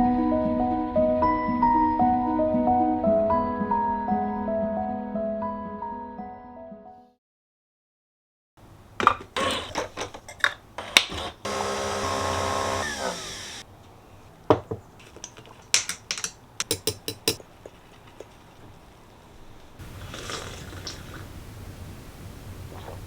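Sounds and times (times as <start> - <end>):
small electric motor winding down: 11.1 - 13.6.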